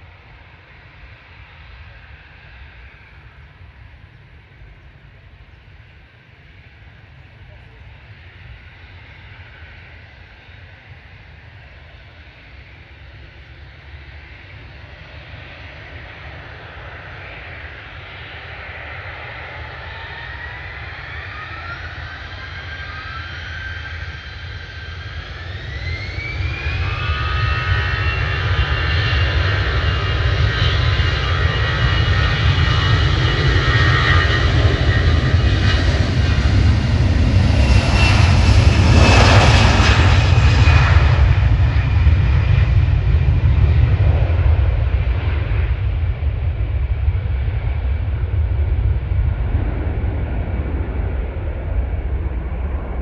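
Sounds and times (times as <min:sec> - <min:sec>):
jet engines spooling up: 0:14.5 - 0:53.0
rising engine whine: 0:18.4 - 0:53.0.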